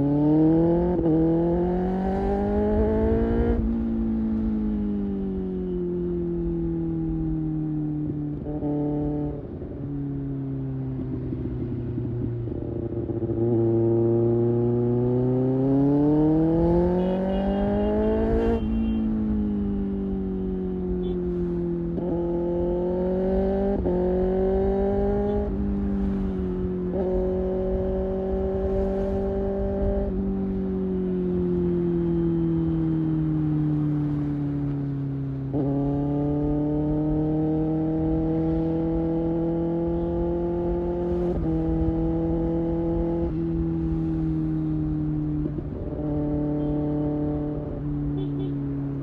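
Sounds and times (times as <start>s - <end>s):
motorcycle engine revving: 11.0s - 49.0s.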